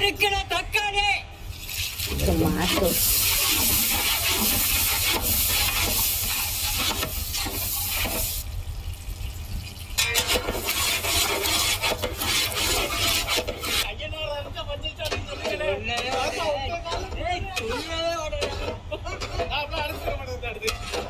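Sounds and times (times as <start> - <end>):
tomatoes sizzling in hot oil: 1.5 - 13.9
ladle scraping a pot: 1.6 - 8.4, 9.9 - 13.9, 15.1 - 21.0.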